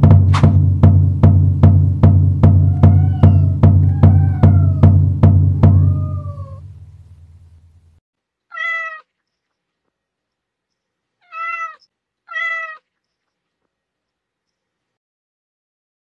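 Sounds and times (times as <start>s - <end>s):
cat meowing: 2.6s - 5.0s, 5.6s - 6.7s, 8.5s - 9.2s, 11.2s - 12.9s.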